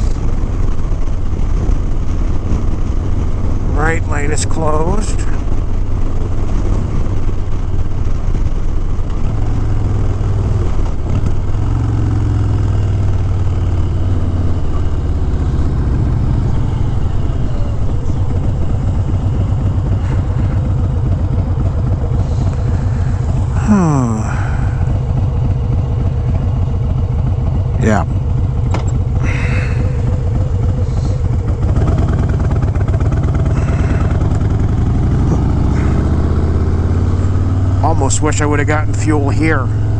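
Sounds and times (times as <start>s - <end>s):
motorcycle engine rumbling: 0.0s - 39.9s
whine falling in pitch: 13.5s - 37.5s.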